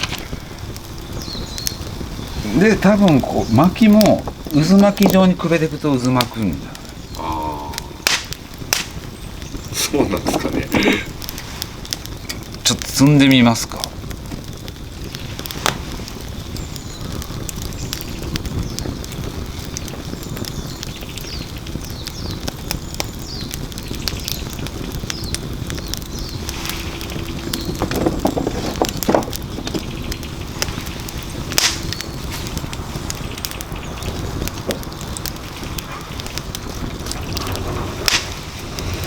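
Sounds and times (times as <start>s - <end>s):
firewood knocking: 0.0s - 20.7s, 22.3s - 39.0s
wood fire crackling: 0.0s - 39.0s.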